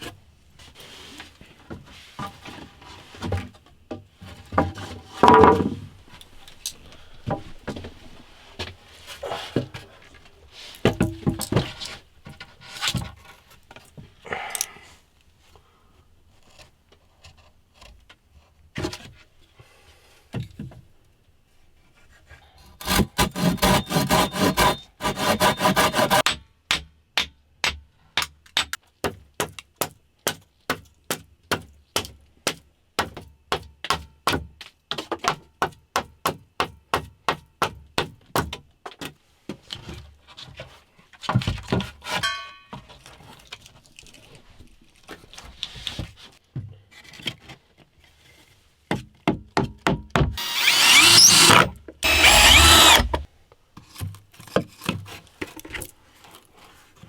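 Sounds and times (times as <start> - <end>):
loud rasping: 22.8 - 26.2, 50.4 - 53.2.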